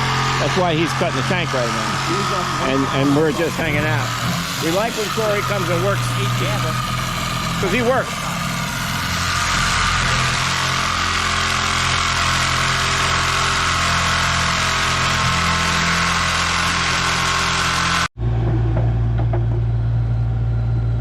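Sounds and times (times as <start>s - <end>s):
power tool cutting steel: 0.0s - 18.1s
engine idling: 0.0s - 21.0s.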